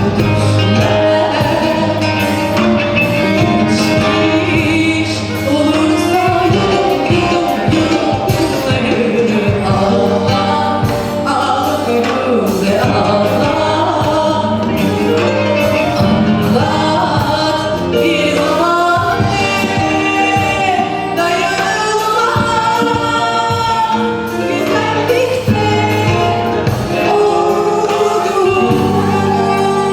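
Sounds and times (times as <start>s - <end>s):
band accompaniment: 0.0s - 29.9s
person singing pop song: 0.0s - 29.9s.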